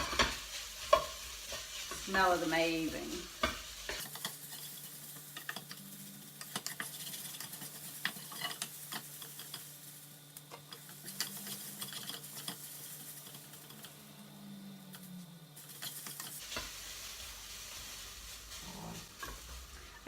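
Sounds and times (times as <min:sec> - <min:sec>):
light sizzle: 0:00.0 - 0:20.0
spoon scraping in a pan: 0:00.0 - 0:20.0.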